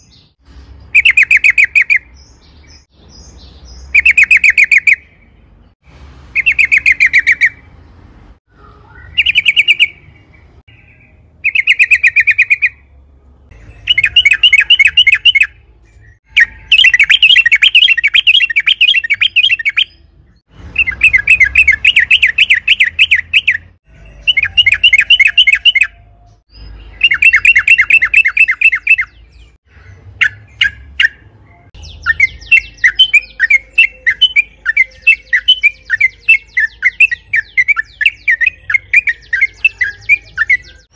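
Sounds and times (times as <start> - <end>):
bird singing chattering notes: 9.0 - 12.8, 13.5 - 40.9.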